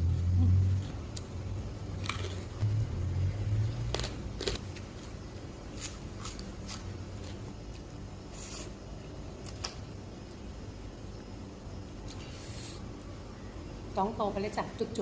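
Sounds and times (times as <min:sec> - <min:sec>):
crunching and mouth clicks: 0:02.0 - 0:02.6, 0:03.9 - 0:04.9
person chewing: 0:02.0 - 0:02.6, 0:03.8 - 0:05.1.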